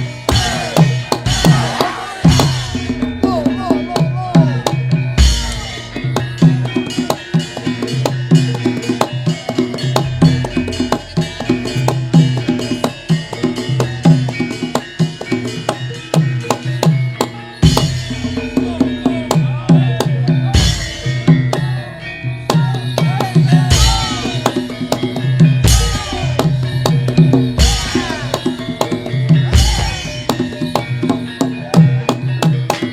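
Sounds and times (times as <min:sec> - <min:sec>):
ringing pitched metal tones: 0:00.0 - 0:32.9.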